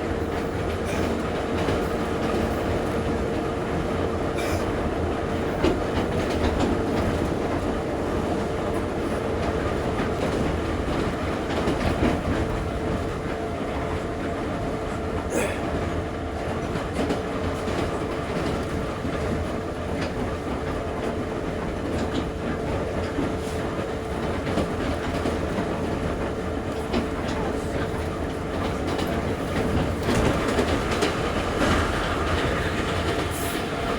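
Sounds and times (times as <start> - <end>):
metro train rumbling in tunnel: 0.0 - 33.9
wheels clacking over rail joints: 16.6 - 33.9.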